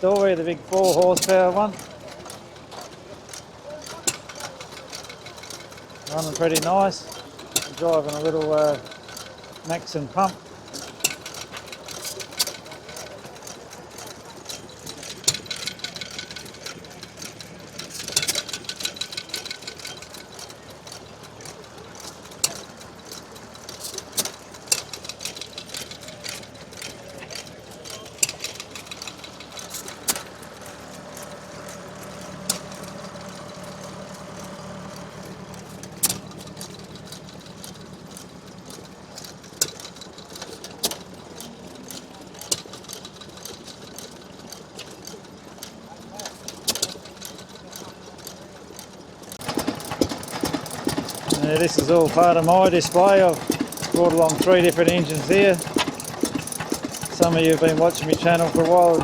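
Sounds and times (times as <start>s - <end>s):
dense clicking: 0.0s - 44.2s, 49.2s - 59.0s
farm engines chugging: 0.0s - 59.0s
engine firing cracks: 49.3s - 59.0s.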